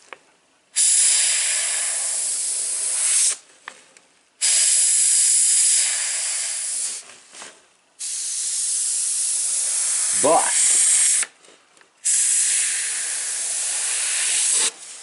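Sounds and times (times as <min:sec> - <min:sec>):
airbrush spraying hiss: 0:00.8 - 0:03.4, 0:04.4 - 0:07.0, 0:08.0 - 0:11.3, 0:12.0 - 0:15.0.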